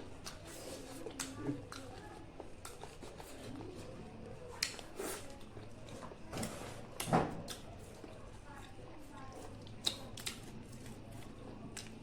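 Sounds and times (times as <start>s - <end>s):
person chewing and smacking: 9.5s - 12.0s.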